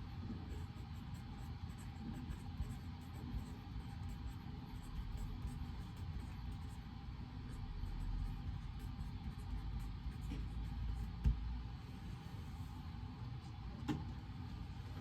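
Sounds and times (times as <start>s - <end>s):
steady low hum: 0.0s - 15.0s
pen writing on paper: 0.2s - 11.4s.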